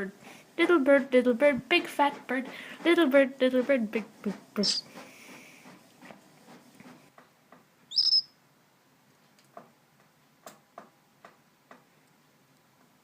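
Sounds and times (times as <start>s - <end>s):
bird chirp: 7.9s - 8.4s.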